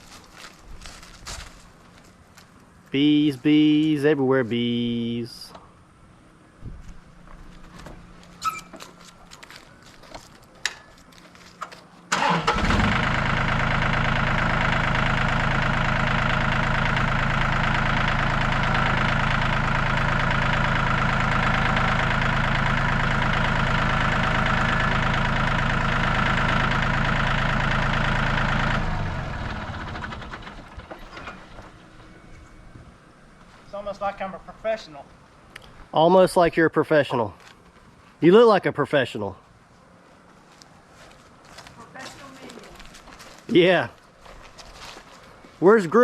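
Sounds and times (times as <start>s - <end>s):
engine running steadily: 0.0s - 33.6s.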